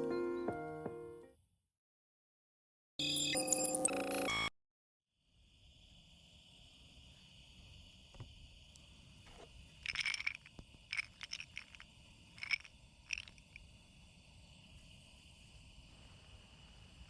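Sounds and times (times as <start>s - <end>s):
high insect chirring: 6.6s - 14.0s.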